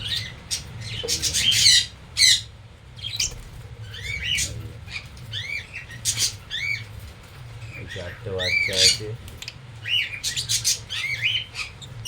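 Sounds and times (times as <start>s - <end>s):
parrots chirping shrilly: 0.0s - 6.9s, 7.9s - 9.1s, 9.8s - 12.0s
parrots squawking: 0.0s - 6.9s, 7.6s - 12.0s.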